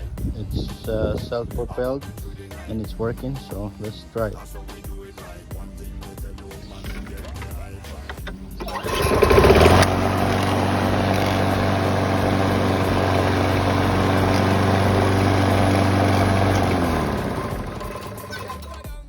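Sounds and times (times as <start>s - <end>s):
lawn mower engine running: 6.6s - 18.9s.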